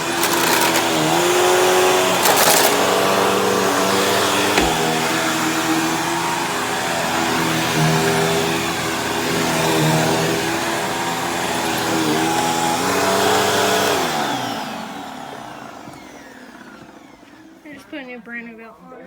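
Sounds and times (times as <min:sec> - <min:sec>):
vacuum brushroll: 0:00.0 - 0:15.0
vacuum cleaner motor whine: 0:00.0 - 0:18.1.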